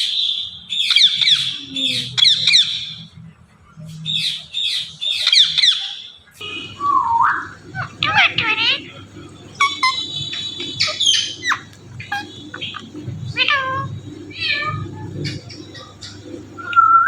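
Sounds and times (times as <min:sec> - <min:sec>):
parrot whistles and squawks: 0:04.1 - 0:17.0.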